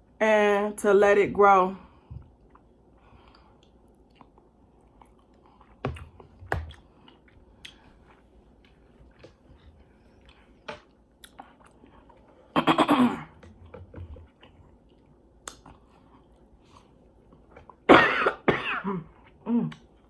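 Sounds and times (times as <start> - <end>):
woman coughing: 12.6 - 13.4, 17.9 - 19.8
chewing clicks: 14.4 - 15.8.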